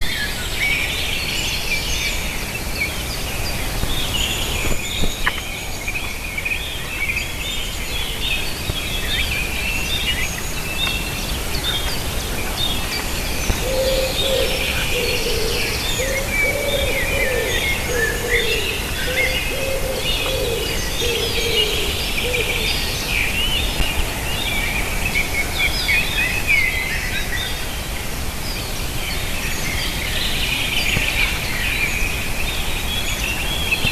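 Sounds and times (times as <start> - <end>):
small birds chirping and singing: 0.0 - 33.9
steady low background noise: 0.1 - 33.9
lower repeated bird call: 12.6 - 23.4.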